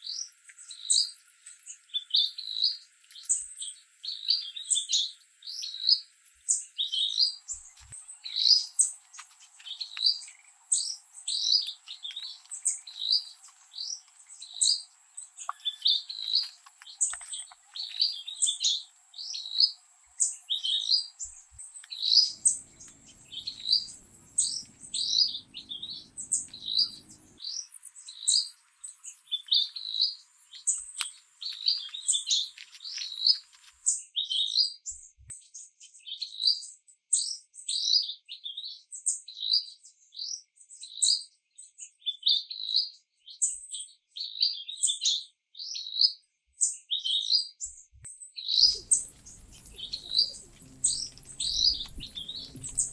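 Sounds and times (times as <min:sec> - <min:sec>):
bird chirping: 0:00.0 - 0:34.5, 0:48.5 - 0:52.9.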